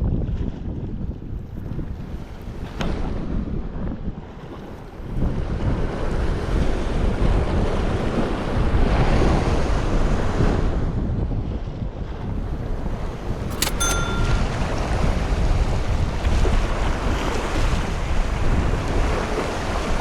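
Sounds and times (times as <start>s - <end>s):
wind buffeting the microphone: 0.0s - 12.4s
double click with ringing tone: 13.5s - 14.6s.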